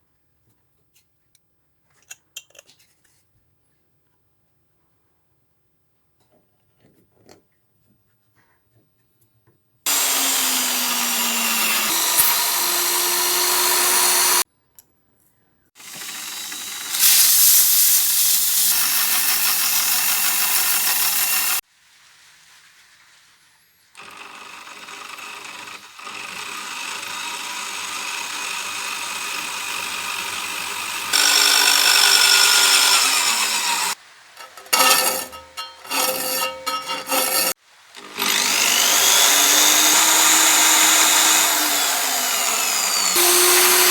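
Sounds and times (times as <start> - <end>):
table saw cutting wood: 9.9 - 14.4, 15.8 - 21.6, 24.0 - 43.9.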